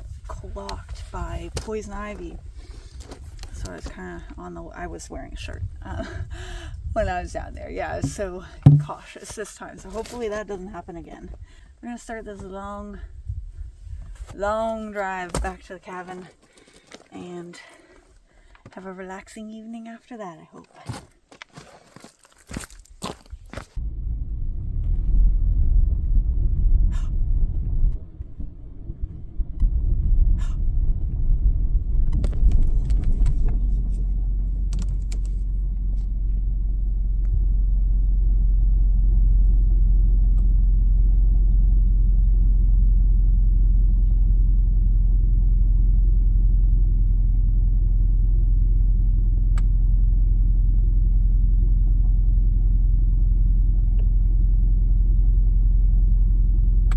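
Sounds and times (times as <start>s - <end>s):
sharp clicks or knocks: 8.0s - 9.0s
car engine and road noise: 23.1s - 56.9s.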